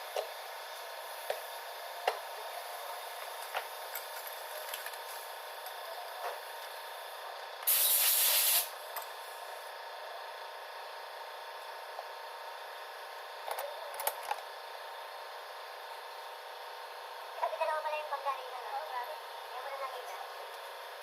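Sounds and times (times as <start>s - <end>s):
hissing burst of compressed air: 7.6s - 8.8s.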